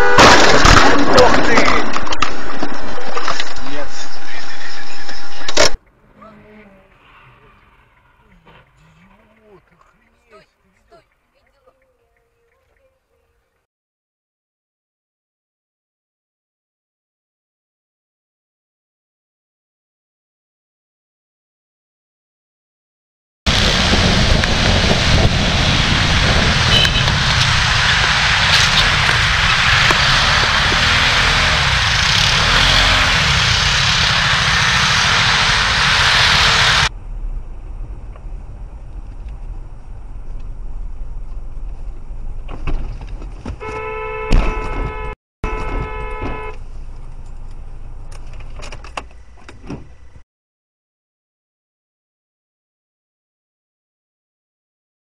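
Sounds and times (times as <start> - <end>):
car horn: 0.0 - 0.6, 26.6 - 27.4, 43.6 - 46.6
low traffic rumble: 0.0 - 12.6, 23.5 - 50.2
car road and wind noise: 23.5 - 50.2.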